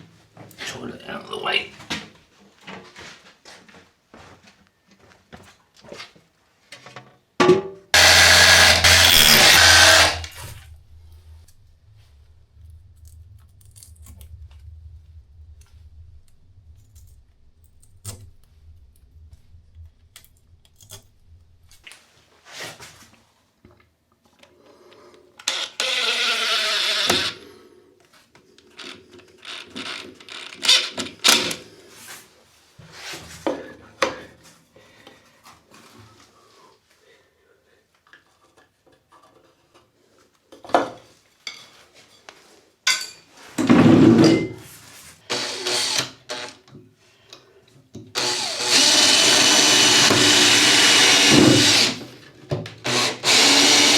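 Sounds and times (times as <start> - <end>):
power tool whirring down: 8.0 - 10.7, 25.4 - 27.4, 45.3 - 46.5, 48.2 - 52.1, 52.8 - 53.9
tools and parts clattering: 42.9 - 44.8.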